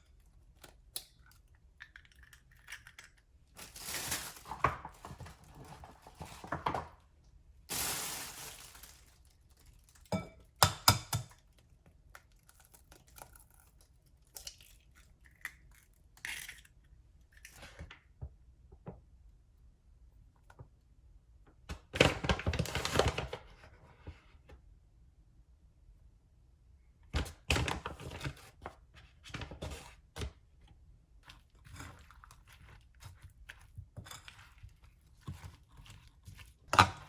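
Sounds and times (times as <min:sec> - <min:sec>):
rustling: 0:07.7 - 0:09.8.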